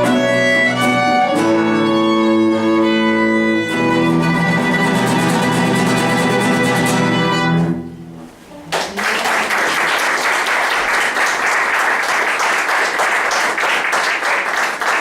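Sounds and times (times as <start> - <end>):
audience applauding: 8.7 - 15.0.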